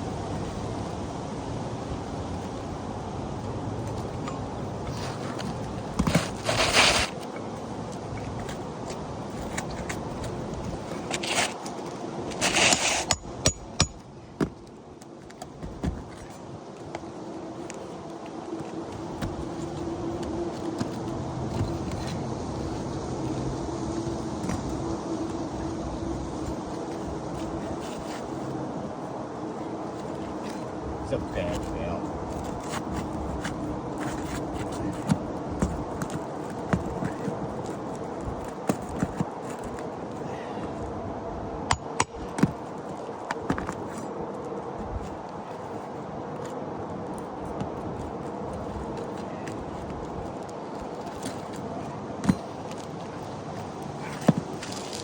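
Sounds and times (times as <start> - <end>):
steady background noise: 0.0 - 55.0
scraping on roof shingles: 4.8 - 7.3, 9.3 - 13.8, 32.3 - 40.8
sharp metallic taps: 13.0 - 14.0.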